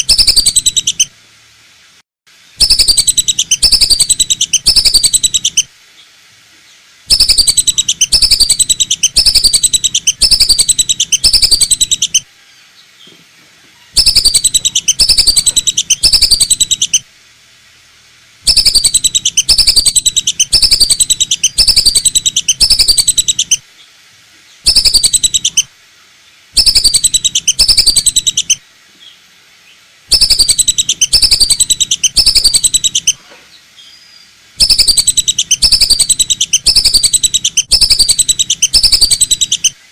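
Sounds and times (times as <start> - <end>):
duck whistling calls: 0.0 - 1.1, 2.6 - 5.7, 7.1 - 12.2, 13.9 - 17.0, 18.5 - 23.6, 24.7 - 25.7, 26.6 - 28.6, 30.1 - 33.2, 34.6 - 39.8.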